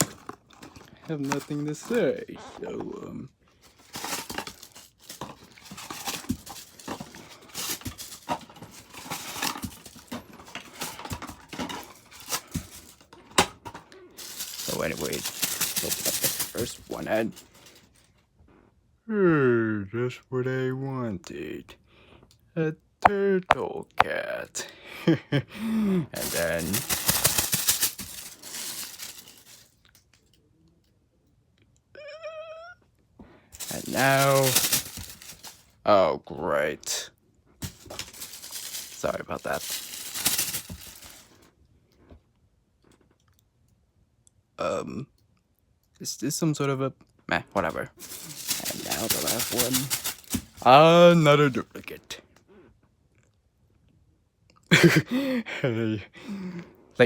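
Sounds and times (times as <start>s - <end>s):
plastic packaging crinkling: 0.0s - 2.1s, 3.7s - 13.1s, 14.2s - 18.0s, 26.2s - 30.0s, 33.6s - 35.7s, 37.6s - 41.4s, 47.6s - 51.5s.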